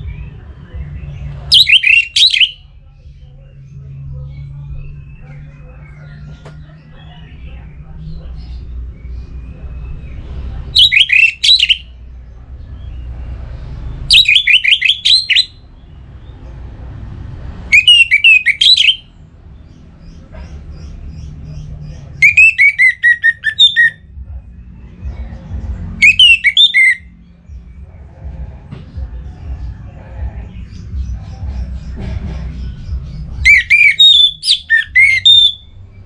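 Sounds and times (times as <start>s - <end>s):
thrush singing: 0.0s - 36.0s
low steady rumble: 15.0s - 35.0s.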